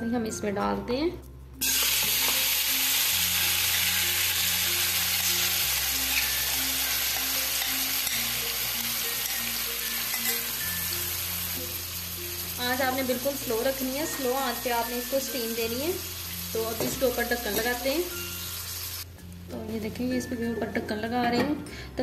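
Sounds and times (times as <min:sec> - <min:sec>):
chicken sizzling in hot oil: 0:01.6 - 0:19.1.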